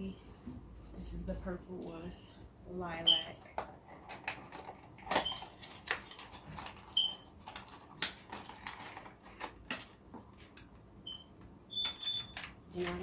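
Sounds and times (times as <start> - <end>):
plastic packaging crinkling: 3.1 - 10.6.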